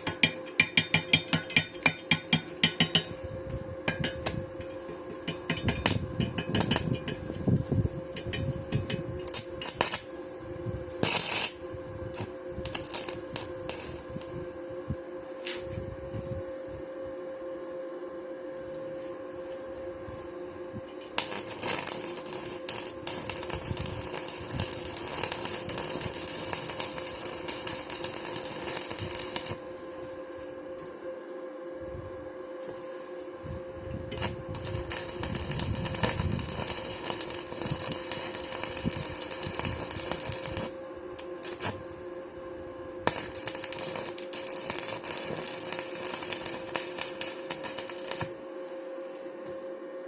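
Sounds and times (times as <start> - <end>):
hammer striking metal: 0.0 - 3.2, 3.9 - 7.2
welding arc crackling: 0.0 - 3.2, 3.9 - 14.6, 21.2 - 30.0, 34.1 - 42.0, 43.0 - 48.4
steady hum: 0.0 - 50.0.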